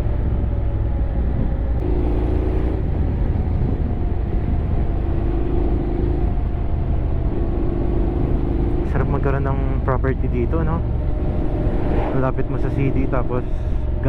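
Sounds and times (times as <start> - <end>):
motorcycle engine rumbling: 0.0 - 14.0.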